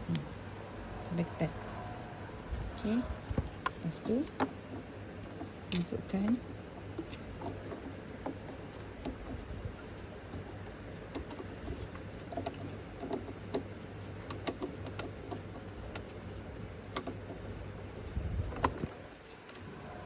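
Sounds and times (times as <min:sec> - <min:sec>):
sewing machine parts clicking: 0:03.6 - 0:17.6.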